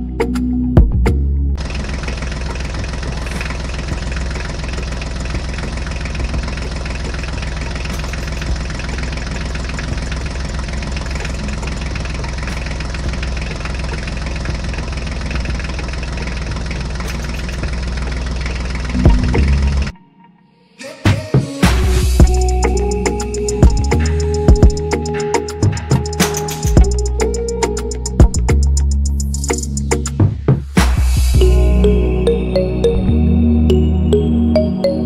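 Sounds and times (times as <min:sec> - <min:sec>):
engine idling: 0:01.6 - 0:20.0, 0:21.6 - 0:31.7.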